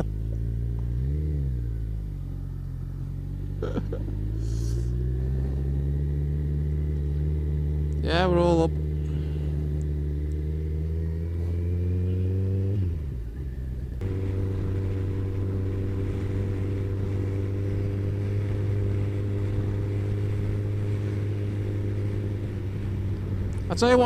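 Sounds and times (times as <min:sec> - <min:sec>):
motorcycle engine cruising: 0:00.0 - 0:24.0
wind rush: 0:14.0 - 0:24.0.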